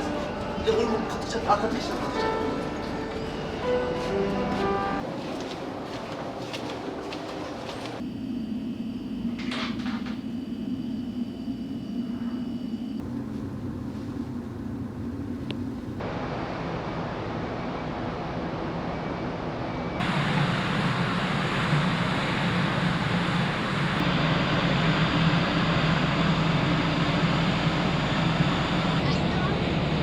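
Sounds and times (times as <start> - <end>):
ship engine rumble: 0.0 - 18.9.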